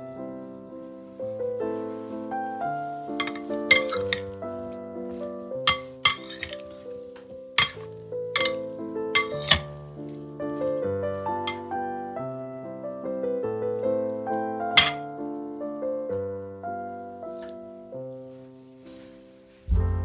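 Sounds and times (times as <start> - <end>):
piano music: 0.0 - 18.5
utensils clinking on a dish: 3.2 - 4.5, 5.7 - 6.9, 7.6 - 9.8, 10.6 - 11.7, 14.8 - 15.1.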